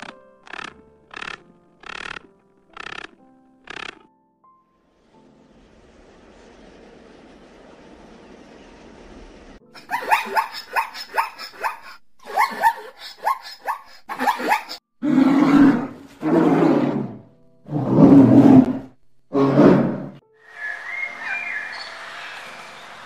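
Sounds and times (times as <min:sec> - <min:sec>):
zebra yelping barks: 0:09.8 - 0:14.8
bear roaring: 0:15.0 - 0:20.2.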